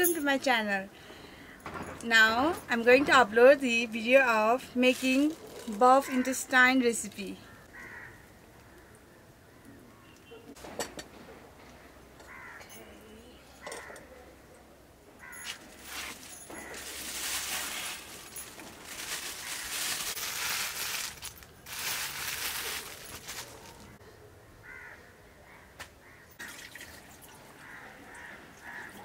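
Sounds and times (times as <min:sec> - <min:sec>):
crow cawing: 0:07.5 - 0:10.2, 0:12.3 - 0:12.7, 0:15.2 - 0:15.6, 0:19.2 - 0:20.0, 0:24.6 - 0:26.3, 0:27.6 - 0:29.0.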